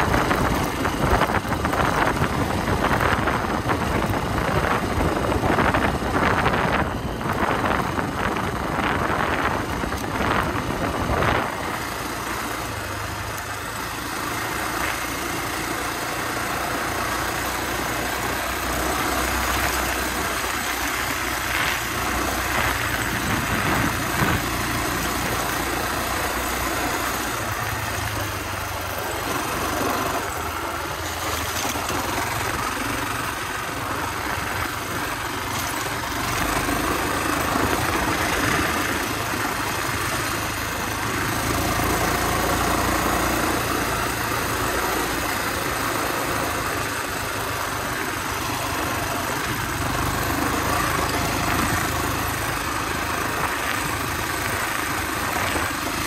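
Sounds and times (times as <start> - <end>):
dirt bike engine running: 0.0 - 56.0
wind buffeting microphone: 21.6 - 24.8.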